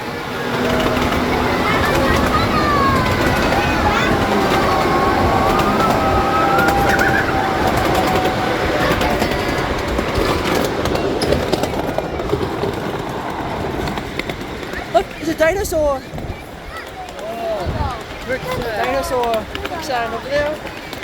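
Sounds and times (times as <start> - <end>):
train rumbling along track: 0.0 - 21.0
train wheels squealing: 0.3 - 12.8.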